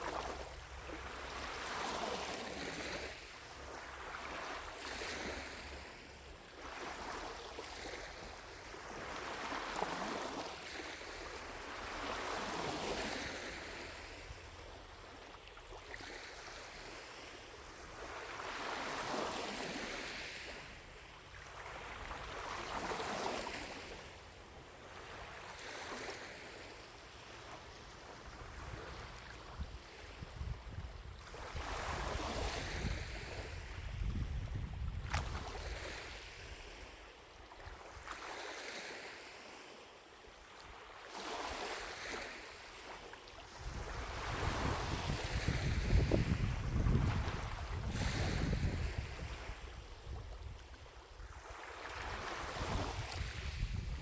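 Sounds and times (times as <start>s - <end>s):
waves lapping at shore: 0.0s - 54.0s
wind rumble on microphone: 27.7s - 36.9s, 43.5s - 54.0s.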